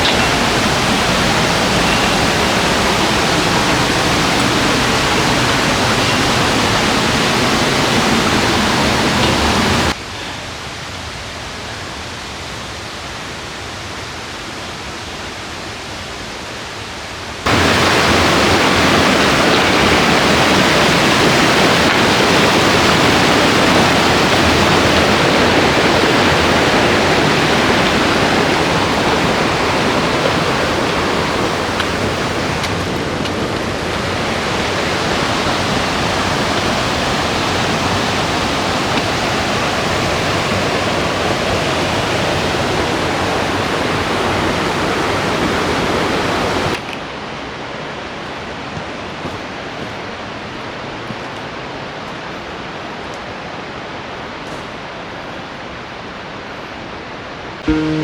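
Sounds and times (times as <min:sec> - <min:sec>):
wind on microphone: 0:00.0 - 0:10.0, 0:17.5 - 0:46.8.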